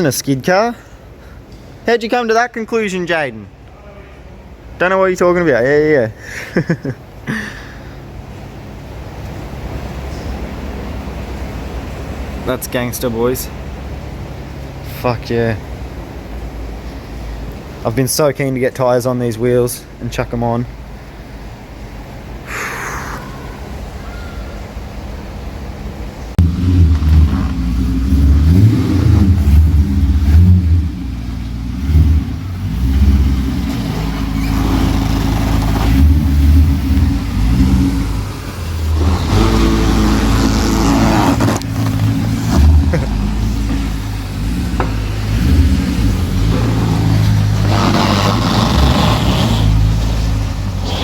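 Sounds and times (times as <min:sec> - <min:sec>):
car engine idling and revving: 0:24.8 - 0:51.0.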